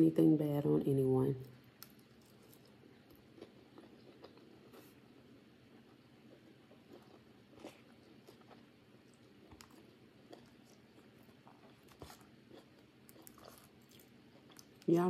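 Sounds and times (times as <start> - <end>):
faint chewing of food: 1.4 - 14.9.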